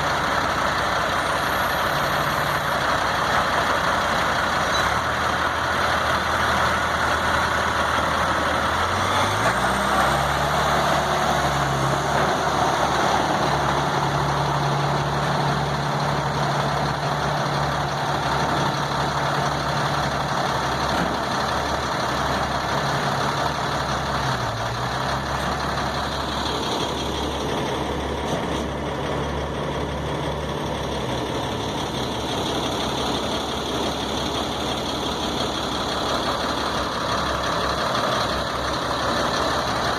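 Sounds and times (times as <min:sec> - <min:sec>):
heavy engine running: 0:00.0 - 0:39.9.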